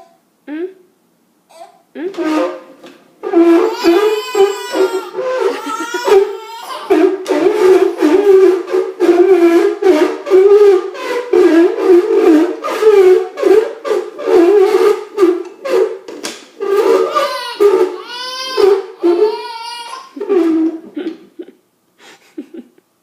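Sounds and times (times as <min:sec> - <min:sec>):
toddler wailing: 0:03.3 - 0:08.0, 0:16.8 - 0:20.3.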